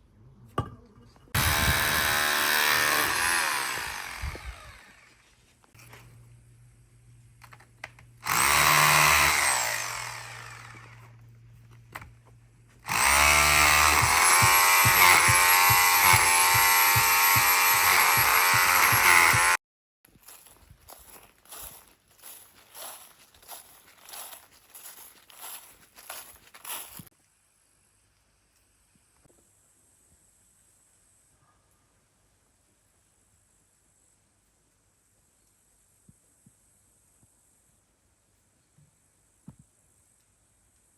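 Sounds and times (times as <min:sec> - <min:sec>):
power tool motor running: 0:01.4 - 0:05.2, 0:08.2 - 0:11.2, 0:12.8 - 0:19.6.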